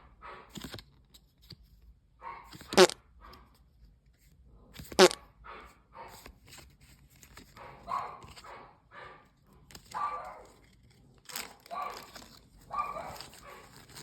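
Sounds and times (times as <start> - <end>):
small dog yipping: 12.7 - 13.8.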